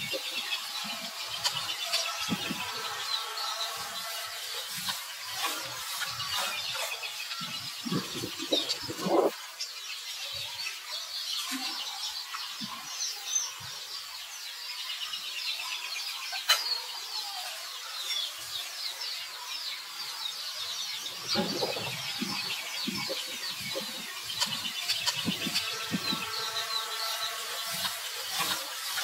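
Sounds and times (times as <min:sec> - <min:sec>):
birds chirping: 0:00.0 - 0:29.0
lower bird calls: 0:05.4 - 0:09.4, 0:21.0 - 0:28.6.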